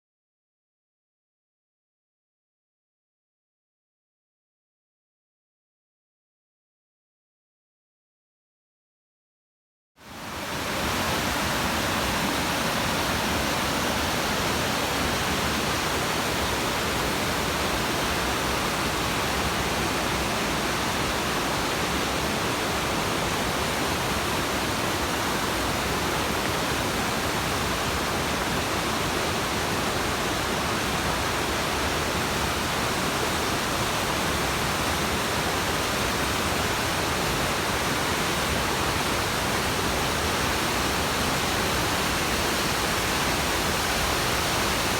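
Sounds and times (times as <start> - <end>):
waterfall rushing: 10.1 - 44.9.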